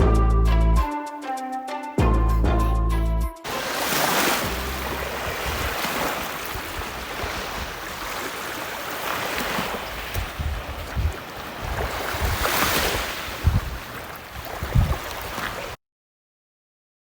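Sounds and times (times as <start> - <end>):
music track: 0.0 - 5.8
waves washing onto beach: 3.5 - 15.8
wind rumbling on microphone: 4.4 - 15.8.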